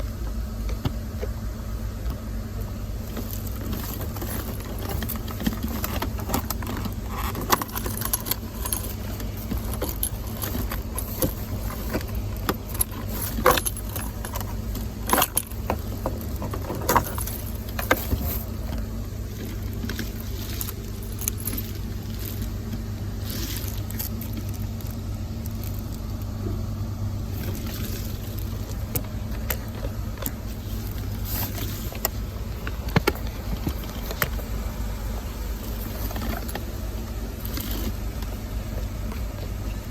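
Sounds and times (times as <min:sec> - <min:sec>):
steady low hum: 0:00.0 - 0:39.9
car keys jangling: 0:03.1 - 0:18.8, 0:19.4 - 0:26.3.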